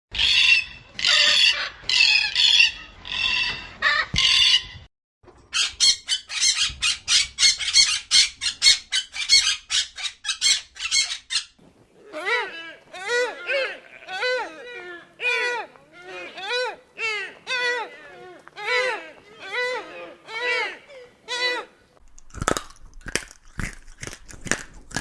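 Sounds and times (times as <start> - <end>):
chickens squawking: 0.2 - 4.8, 5.6 - 11.5.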